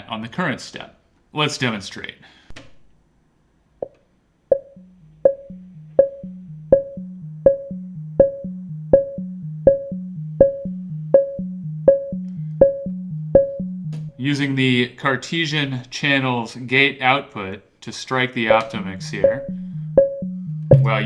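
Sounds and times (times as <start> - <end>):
plucked ringing synth notes: 4.5 - 14.2, 18.7 - 21.0.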